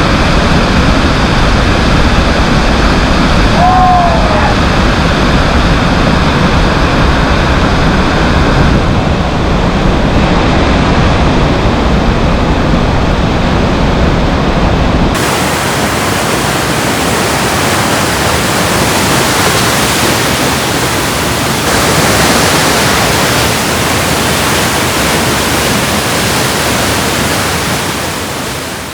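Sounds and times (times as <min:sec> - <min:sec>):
whitewater rapids rushing: 0:00.0 - 0:06.1, 0:15.2 - 0:28.9.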